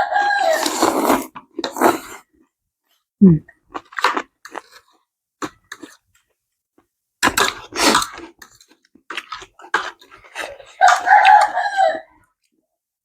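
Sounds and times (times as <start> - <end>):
rooster crowing: 0.0 - 0.6, 10.8 - 12.2
chewing and crunching food: 0.0 - 12.6.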